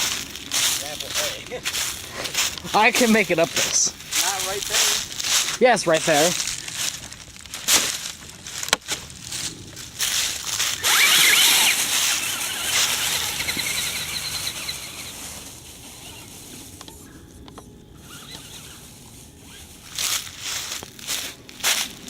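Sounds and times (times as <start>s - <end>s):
crunches and crackles of sticks: 0.0s - 22.0s
electric motor whining: 9.4s - 20.0s.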